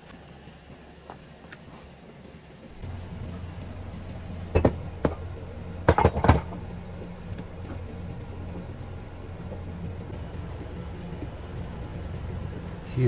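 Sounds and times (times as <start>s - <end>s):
steady low hum: 2.7s - 13.0s.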